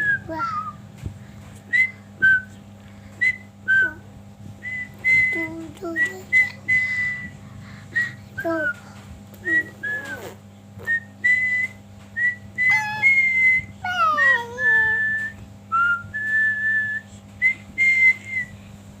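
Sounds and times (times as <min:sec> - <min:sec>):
bird whistling a tune: 0:04.6 - 0:05.4, 0:09.4 - 0:18.5.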